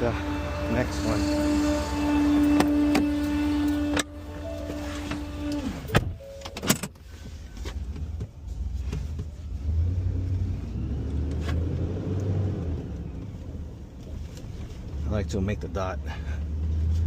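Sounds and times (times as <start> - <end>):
garbage truck whine: 0.0 - 6.6
truck engine low rumble: 0.0 - 17.0.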